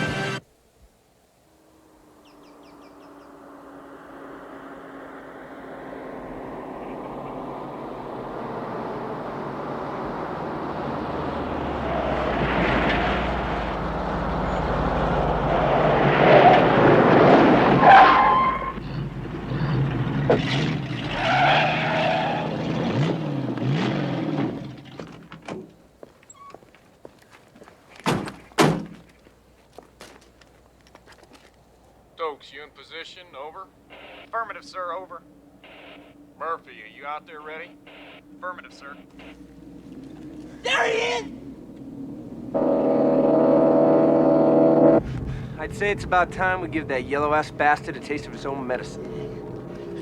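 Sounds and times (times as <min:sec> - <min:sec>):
car passing at speed: 0:01.5 - 0:25.0, 0:35.2 - 0:50.0
sharp knocks: 0:28.0 - 0:29.1.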